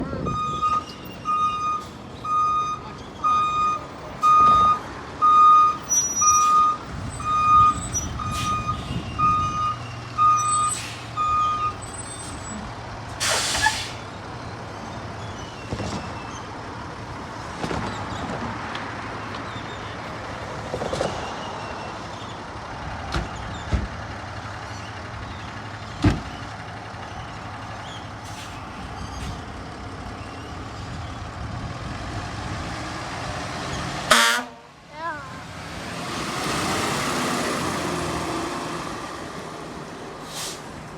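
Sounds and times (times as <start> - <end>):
diesel engine running: 0.0 - 40.9
reversing alarm beeps: 0.2 - 11.9
air brake hiss: 13.2 - 14.0, 40.2 - 40.8.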